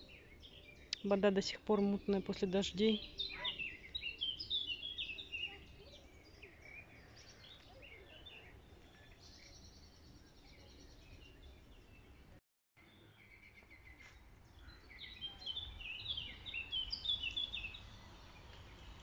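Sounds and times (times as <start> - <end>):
small birds singing and chirping: 0.0 - 19.0
high bird trill: 1.8 - 5.9.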